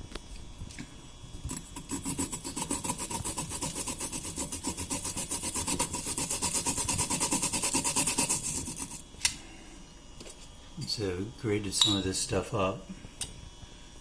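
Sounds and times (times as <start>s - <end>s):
root rasping on hand grater: 1.5s - 9.0s.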